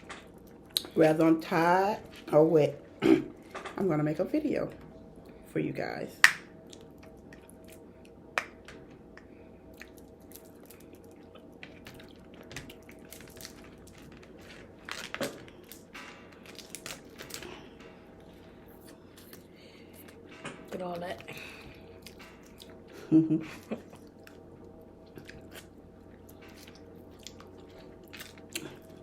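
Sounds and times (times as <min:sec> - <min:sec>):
chewing: 0:06.6 - 0:08.2, 0:09.1 - 0:15.8, 0:21.1 - 0:23.0, 0:23.6 - 0:29.0.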